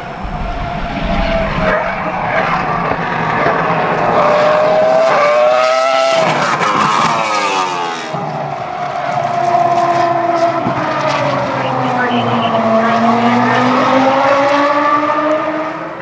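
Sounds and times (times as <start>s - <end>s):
racing car engine at high revs: 0.0s - 16.0s.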